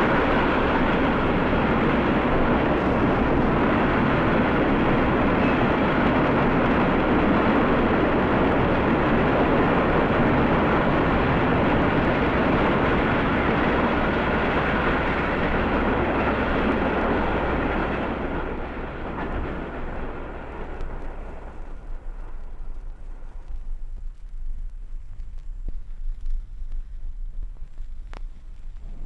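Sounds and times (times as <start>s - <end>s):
steam train running past: 0.0s - 24.2s.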